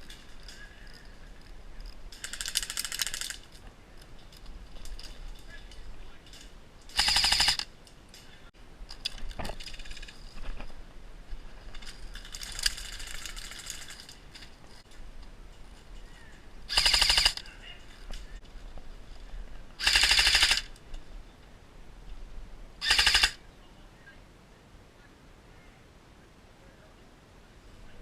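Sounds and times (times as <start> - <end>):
airsoft gun full-auto bursts: 6.9 - 7.7, 16.7 - 17.4, 19.8 - 20.7, 22.8 - 23.4.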